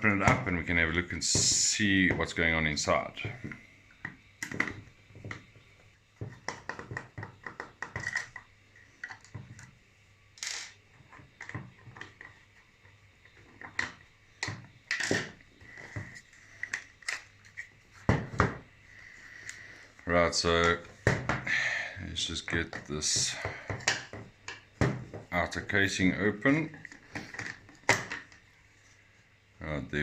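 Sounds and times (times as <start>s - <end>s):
clicks and taps of plastic parts: 6.2s - 9.7s
faint high hum: 8.0s - 30.0s.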